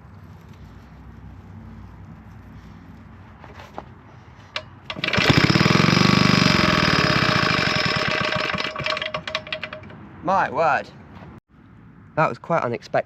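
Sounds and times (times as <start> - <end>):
small petrol engine running: 4.5 - 10.0.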